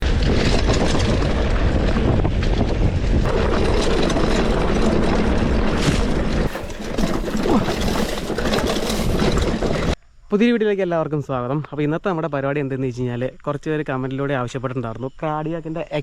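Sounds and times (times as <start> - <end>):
bike rattling over rough ground: 0.0 - 10.0
wind buffeting microphone: 0.0 - 10.0.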